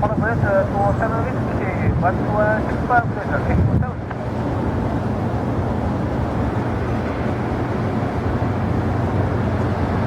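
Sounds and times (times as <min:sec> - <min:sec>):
jet engines rumbling: 0:00.0 - 0:10.0.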